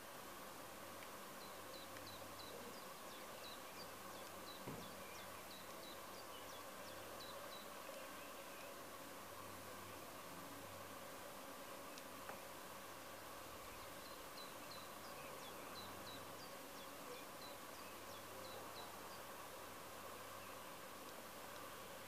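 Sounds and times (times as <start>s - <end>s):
faint steady hum: 0.0s - 22.0s
songbird chirping: 1.4s - 8.8s, 13.5s - 19.4s
soft knock: 4.6s - 4.9s.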